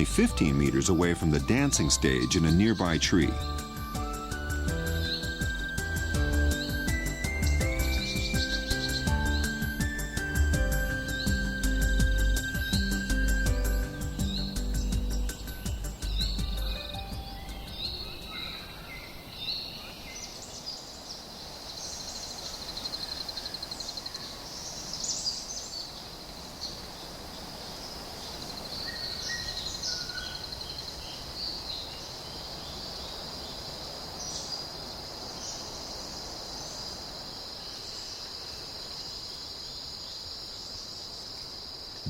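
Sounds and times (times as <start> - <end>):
bird chirps and calls: 10.8 - 20.8, 28.4 - 32.1.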